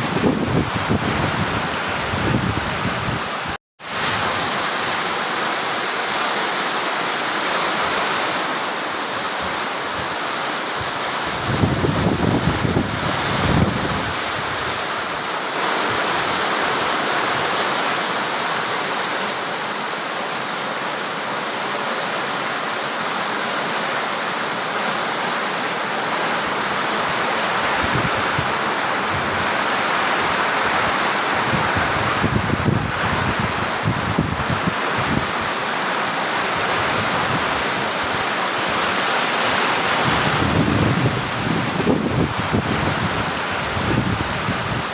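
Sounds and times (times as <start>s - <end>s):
wind buffeting microphone: 0.0s - 3.3s, 11.3s - 14.8s, 27.5s - 35.3s, 40.0s - 44.9s
heavy rain hissing: 0.0s - 44.9s.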